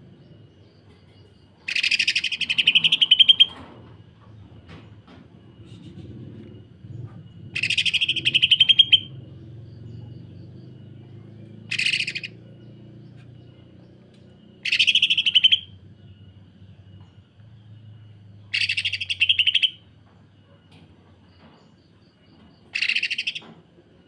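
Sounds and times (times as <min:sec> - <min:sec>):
bird rattling calls: 0:01.6 - 0:03.8, 0:07.2 - 0:09.2, 0:11.6 - 0:12.4, 0:14.5 - 0:15.8, 0:18.5 - 0:19.9, 0:22.7 - 0:23.6.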